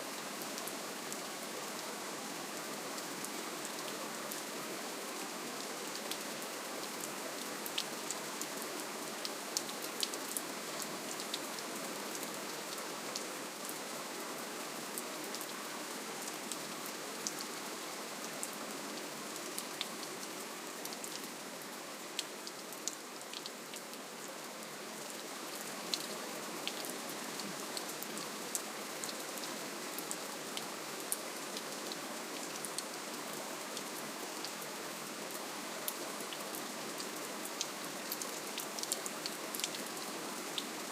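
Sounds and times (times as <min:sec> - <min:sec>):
raindrops ticking on a surface: 0:37.4 - 0:40.7.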